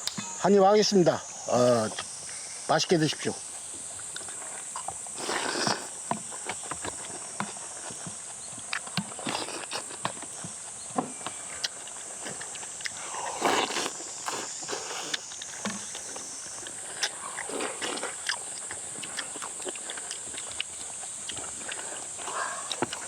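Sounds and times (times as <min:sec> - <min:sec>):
steady high-pitched hiss: 0:00.0 - 0:23.0
chewing: 0:03.5 - 0:23.0
slurping soup: 0:04.4 - 0:06.0, 0:08.8 - 0:10.0, 0:11.6 - 0:23.0.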